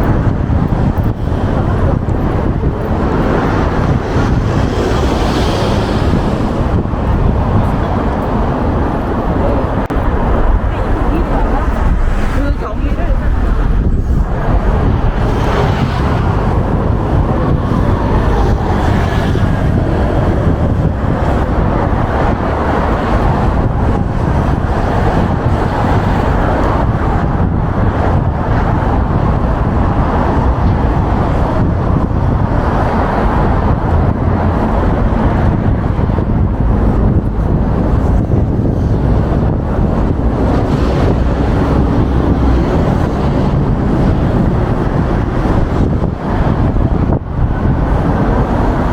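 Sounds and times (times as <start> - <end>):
city street traffic: 0.0 - 48.9
wind rumbling on microphone: 0.0 - 48.9
vehicle passing by: 1.2 - 26.4.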